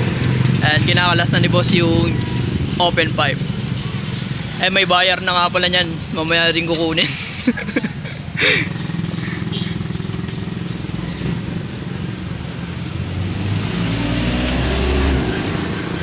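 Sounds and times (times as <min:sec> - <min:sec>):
motorcycle engine running: 0:08.3 - 0:13.3.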